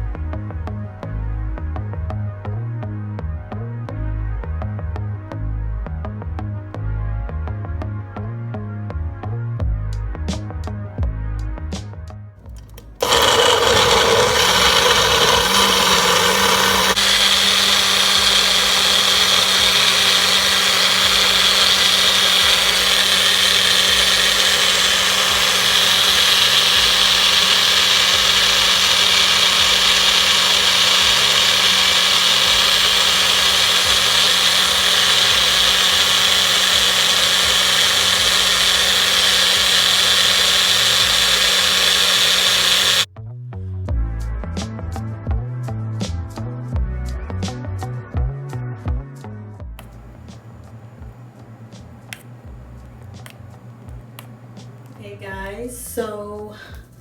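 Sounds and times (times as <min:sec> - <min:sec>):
blender motor running: 0:12.8 - 0:43.1.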